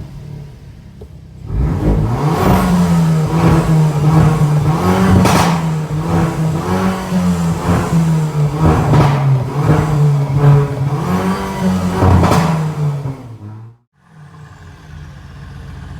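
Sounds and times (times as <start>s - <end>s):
noisy exhaust surges: 0.0s - 13.6s
car engine running: 0.0s - 15.9s.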